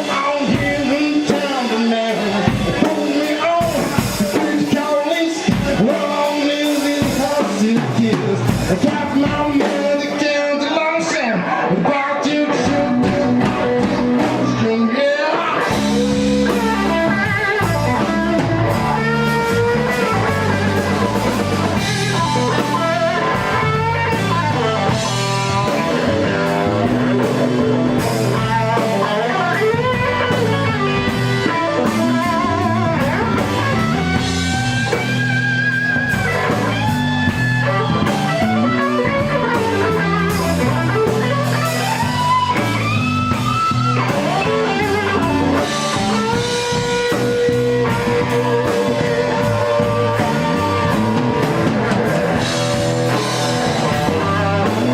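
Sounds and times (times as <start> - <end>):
walking bass line: 0.0 - 10.2, 11.6 - 54.9
drums: 0.0 - 54.9
electric guitar solo: 10.3 - 54.9.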